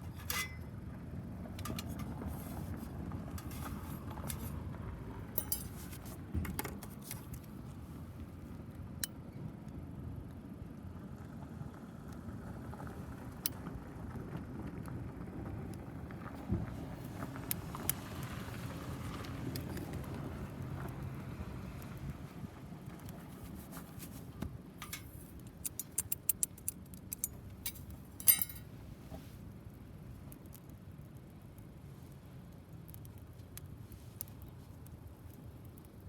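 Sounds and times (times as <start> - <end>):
light clinks and clicks: 5.4 - 6.1, 24.8 - 28.7
fire crackles: 10.2 - 36.0
wood fire rumbling: 10.2 - 36.0.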